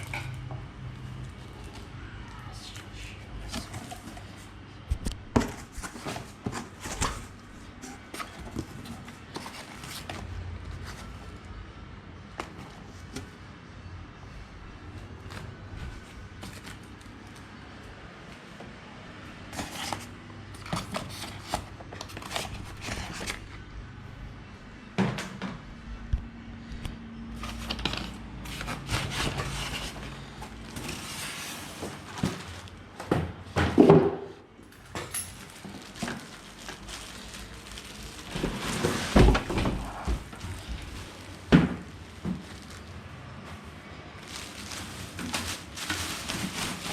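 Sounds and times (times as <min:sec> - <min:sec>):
packaging rustling: 0:05.4 - 0:11.4, 0:15.2 - 0:17.7, 0:19.4 - 0:23.6, 0:35.1 - 0:46.9.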